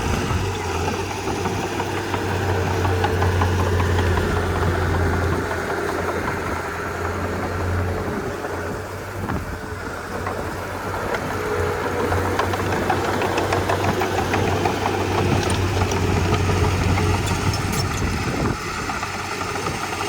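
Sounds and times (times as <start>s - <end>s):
bulldozer diesel engine running: 0.0s - 20.0s
scattered clicks: 12.1s - 18.2s.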